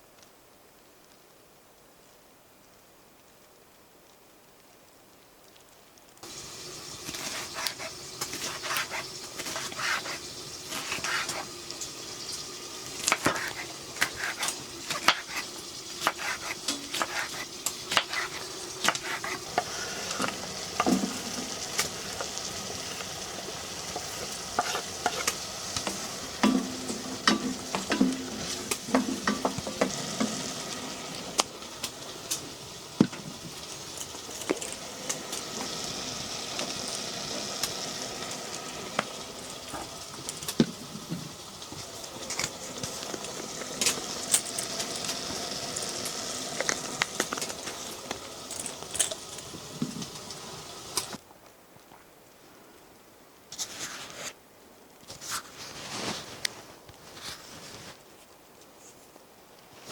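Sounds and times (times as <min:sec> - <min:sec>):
food sizzling in a pan: 0:06.2 - 0:51.2
utensil scraping a pan: 0:06.9 - 0:30.9.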